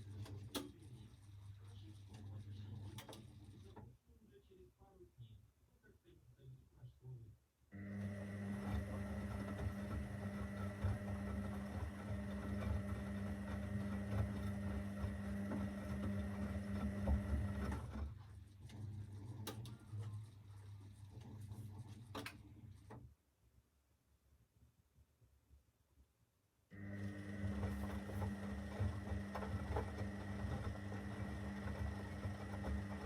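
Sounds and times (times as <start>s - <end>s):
washing machine motor hum: 0.0s - 3.8s, 7.7s - 23.0s, 26.7s - 33.0s.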